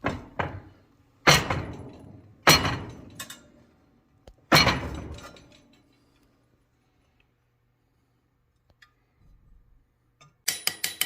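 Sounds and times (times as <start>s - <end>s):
hammer striking rivet: 1.2s - 3.0s.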